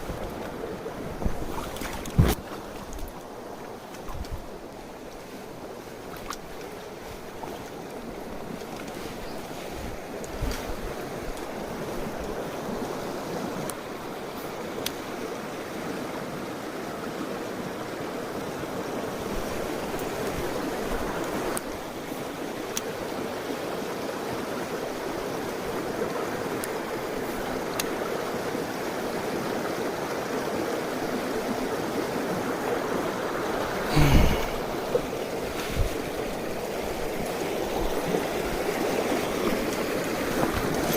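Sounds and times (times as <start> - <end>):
stream rushing over rocks: 0.0 - 40.9
knock or rustle: 2.1 - 2.4.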